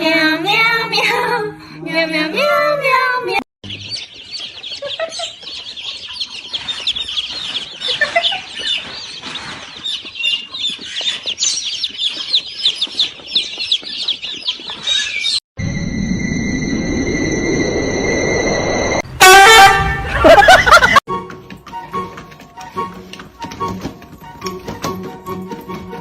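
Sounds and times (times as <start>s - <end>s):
small birds chirping: 3.6s - 15.4s
low rumble: 15.6s - 19.2s.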